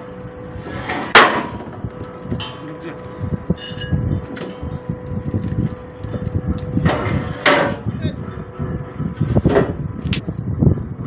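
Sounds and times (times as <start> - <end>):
steady machine hum: 0.0 - 11.0
heavy impact in truck body: 0.8 - 2.6, 6.8 - 8.0.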